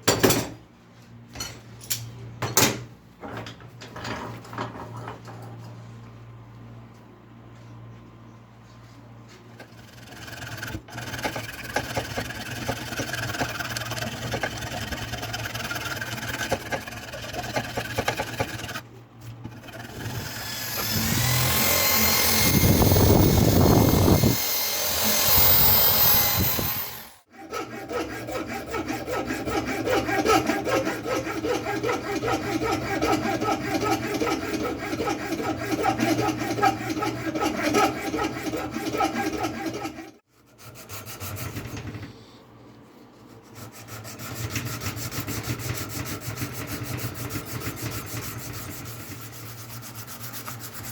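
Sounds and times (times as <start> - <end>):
rasping strokes on wood: 9.6 - 18.8, 19.4 - 41.8, 43.3 - 50.9
power tool high whine: 19.8 - 27.3.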